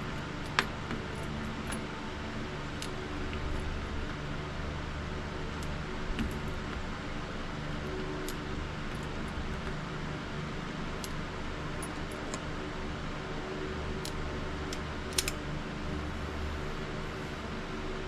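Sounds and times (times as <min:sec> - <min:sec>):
steady mechanical hum: 0:00.0 - 0:18.0
sharp double click: 0:15.1 - 0:15.4.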